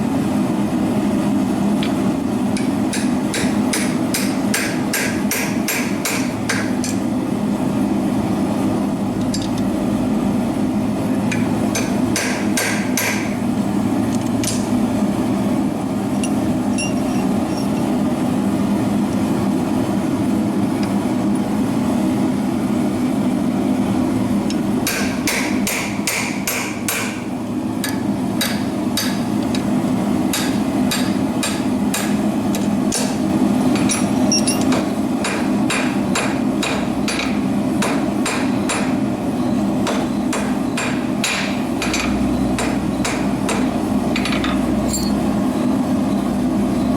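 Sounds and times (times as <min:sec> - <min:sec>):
hammer striking hot iron: 0:01.9 - 0:07.1, 0:11.3 - 0:13.4, 0:24.5 - 0:29.7, 0:30.3 - 0:39.0, 0:39.8 - 0:45.2.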